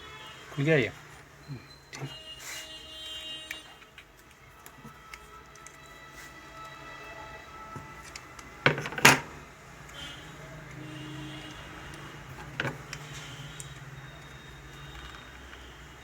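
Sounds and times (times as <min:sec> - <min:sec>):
metal machine parts knocking: 0:08.6 - 0:09.4, 0:12.4 - 0:12.9.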